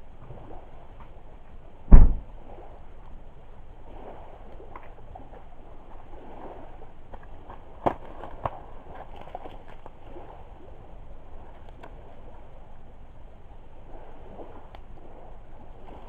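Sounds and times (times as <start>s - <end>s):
sharp fire pops: 1.9s - 2.3s.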